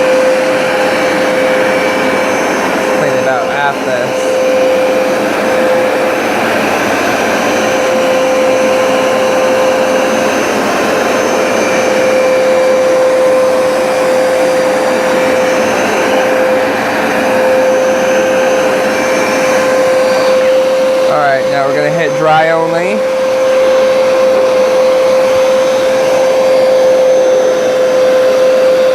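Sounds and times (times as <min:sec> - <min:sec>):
carpet cleaner suction motor whining: 0:00.0 - 0:28.9.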